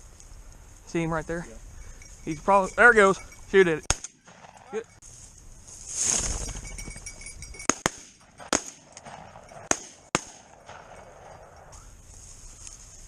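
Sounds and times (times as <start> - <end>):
faint outdoor hiss: 0.0 - 13.0
low rumble: 6.3 - 12.2.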